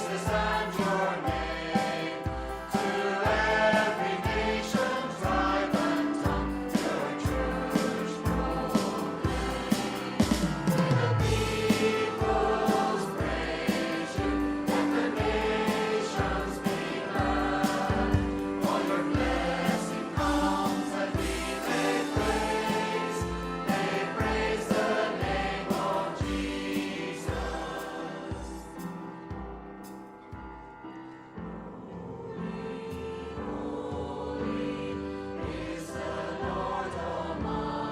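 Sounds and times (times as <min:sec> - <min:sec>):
group singing: 0:00.0 - 0:29.1, 0:31.8 - 0:37.9
praise band playing: 0:00.0 - 0:37.9.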